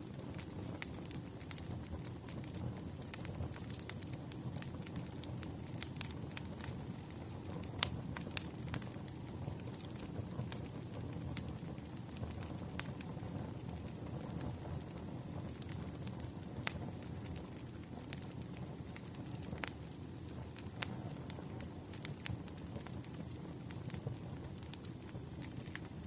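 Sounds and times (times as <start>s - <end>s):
firewood crackling and popping: 0.0s - 26.0s
low rumble of fire: 0.0s - 26.0s.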